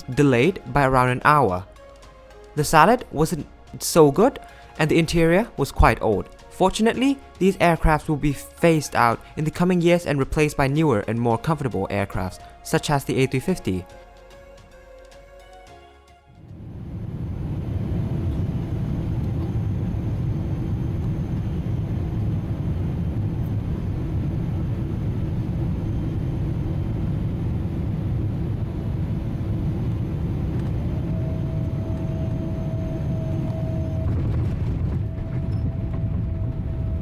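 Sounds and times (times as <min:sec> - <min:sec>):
airliner cabin engine rumble: 0:16.4 - 0:37.0
faint whine: 0:16.4 - 0:37.0.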